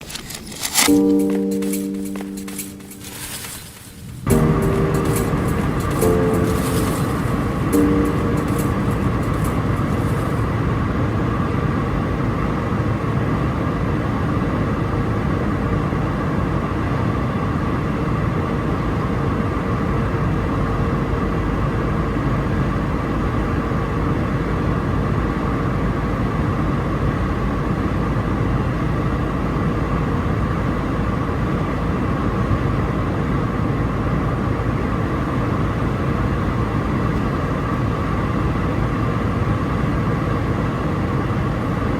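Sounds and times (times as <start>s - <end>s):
airliner cabin roar: 0.0s - 15.4s.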